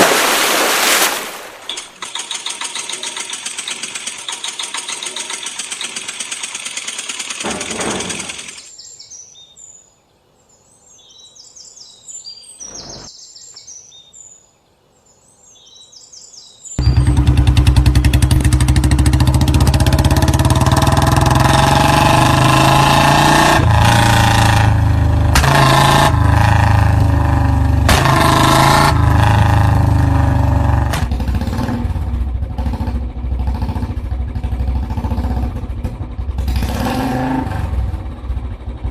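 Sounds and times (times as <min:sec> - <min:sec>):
engine running: 0:01.7 - 0:08.7, 0:16.8 - 0:38.9
motorcycle engine running: 0:02.0 - 0:08.7, 0:16.8 - 0:38.9
birds chirping: 0:08.1 - 0:19.4.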